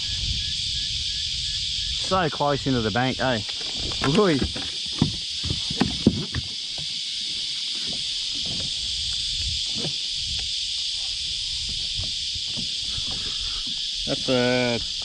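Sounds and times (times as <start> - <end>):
insects buzzing: 0.0 - 15.0
sharp knocks and clicks: 3.5 - 6.9.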